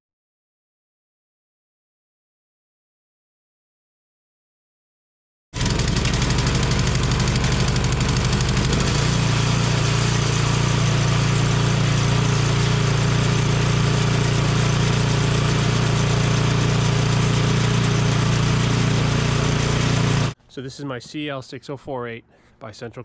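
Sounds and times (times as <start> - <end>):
machine humming: 5.6 - 20.4.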